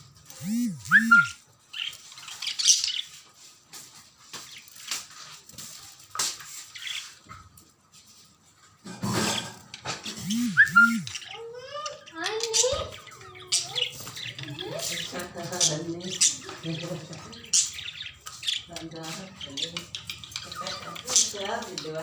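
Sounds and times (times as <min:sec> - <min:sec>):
budgerigars chirping: 0:00.4 - 0:01.3, 0:12.6 - 0:21.8.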